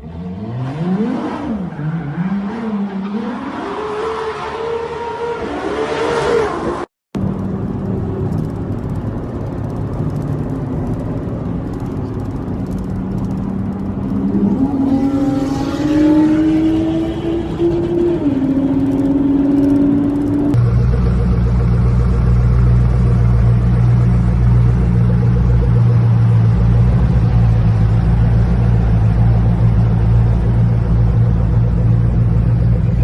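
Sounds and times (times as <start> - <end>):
sports car engine revving: 12.5 - 33.0.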